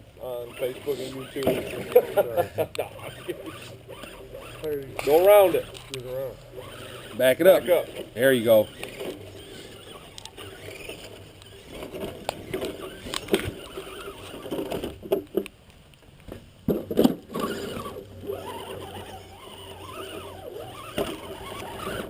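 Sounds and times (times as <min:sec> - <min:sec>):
electric motor and gears whining: 0:00.0 - 0:15.4, 0:17.1 - 0:22.0
toy truck knocking and clattering: 0:07.8 - 0:15.5, 0:16.7 - 0:22.0.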